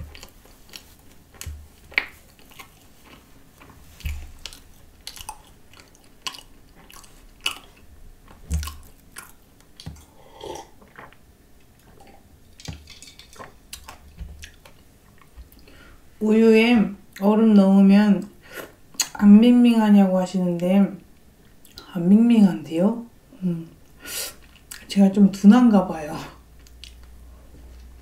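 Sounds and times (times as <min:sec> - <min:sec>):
person chewing pastry: 0:00.0 - 0:15.8, 0:26.6 - 0:28.0.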